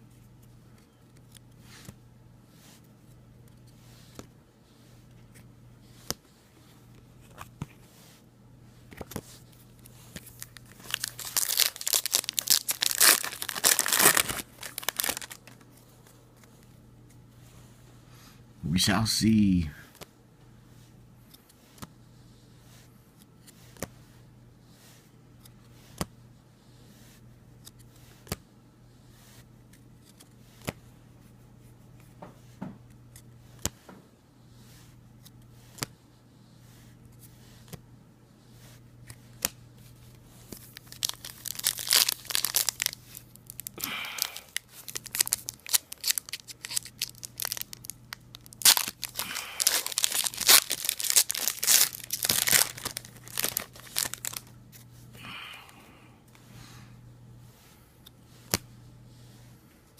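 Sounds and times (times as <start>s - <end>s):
low steady hum: 0.0s - 59.9s
plastic wrapper tearing and crinkling: 10.2s - 15.6s, 40.5s - 54.5s.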